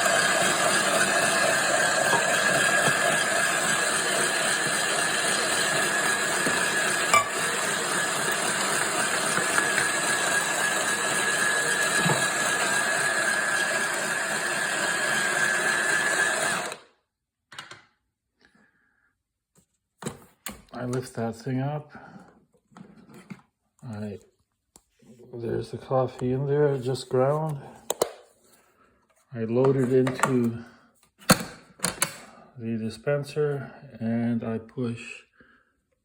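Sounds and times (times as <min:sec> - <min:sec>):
coffee grinder whining: 0:00.0 - 0:17.0.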